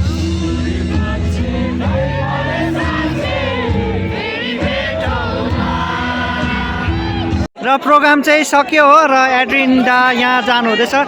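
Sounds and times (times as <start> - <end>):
live band over loudspeakers: 0.0 - 7.5
crowd singing and shouting: 0.0 - 11.0.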